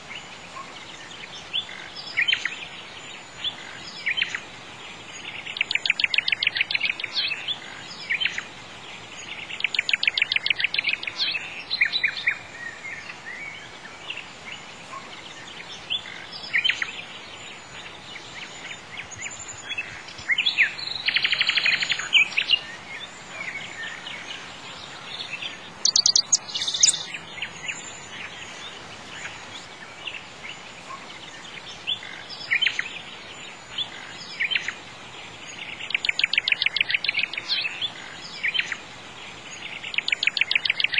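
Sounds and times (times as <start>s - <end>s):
birds singing: 0.0s - 40.9s
steady outdoor hiss: 0.0s - 40.9s
bird rapid trill: 25.8s - 27.1s.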